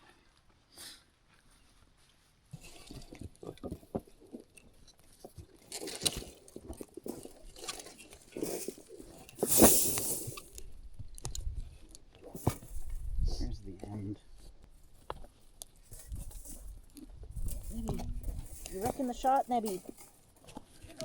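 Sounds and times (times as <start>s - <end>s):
rough scraping rustle: 0.8s - 10.8s, 14.2s - 21.0s
scuffs and clicks of fence work: 1.4s - 12.9s, 14.4s - 21.0s.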